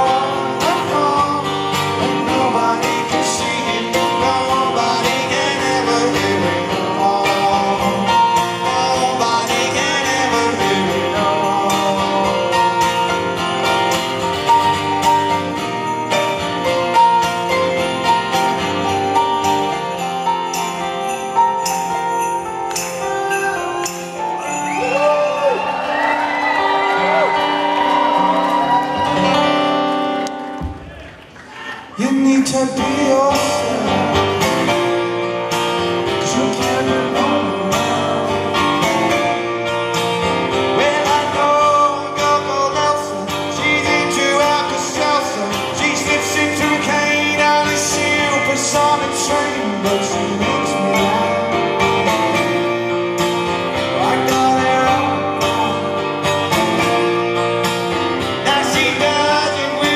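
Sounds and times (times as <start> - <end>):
man singing: 0.0 - 19.2, 31.9 - 59.9
live rock band playing: 0.0 - 30.8, 32.1 - 59.9.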